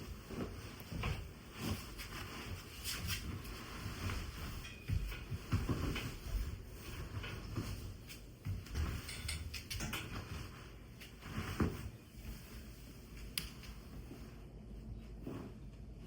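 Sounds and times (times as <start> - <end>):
light clicks and knocks: 4.1 - 11.8.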